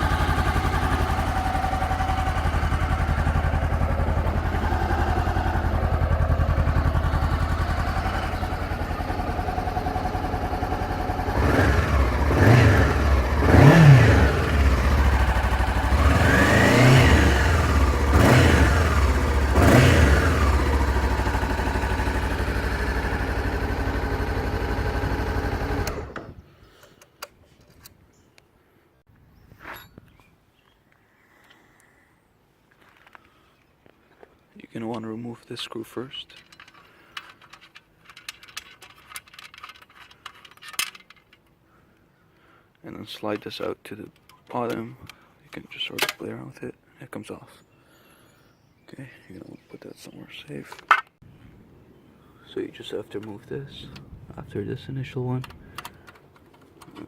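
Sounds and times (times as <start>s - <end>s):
motorcycle engine idling and revving: 0.0s - 26.4s.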